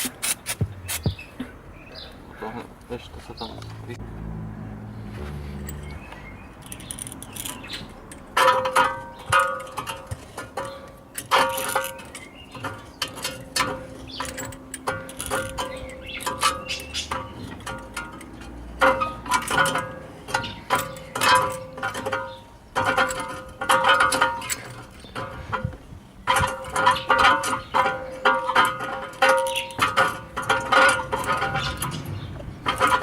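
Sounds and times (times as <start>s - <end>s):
scrubbing metal brake parts: 0.0s - 1.6s, 26.3s - 33.0s.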